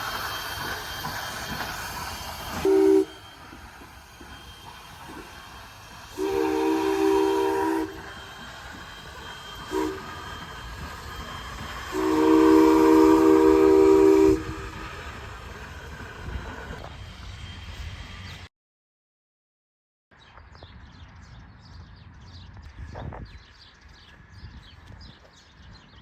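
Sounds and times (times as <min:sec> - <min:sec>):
low train rumble: 0:00.0 - 0:18.5, 0:20.2 - 0:26.0
locomotive chime whistle blasts: 0:02.3 - 0:15.0.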